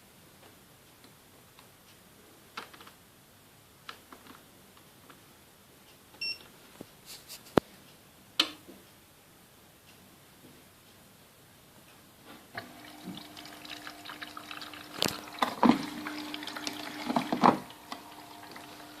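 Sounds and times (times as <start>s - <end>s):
water filling washing machine: 12.6s - 19.0s.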